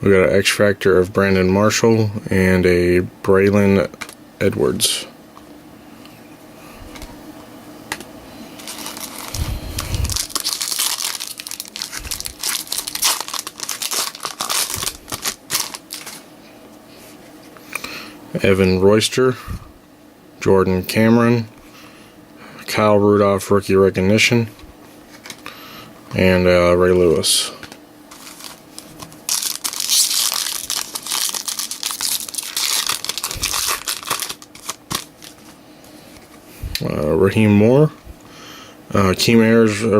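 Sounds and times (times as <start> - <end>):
wrapper tearing and crinkling: 8.6 - 16.2, 28.1 - 35.6.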